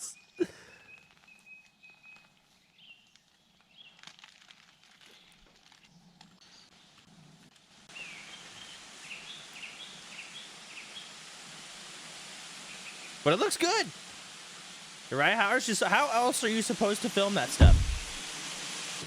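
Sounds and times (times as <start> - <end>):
steady hiss: 6.5 - 19.0.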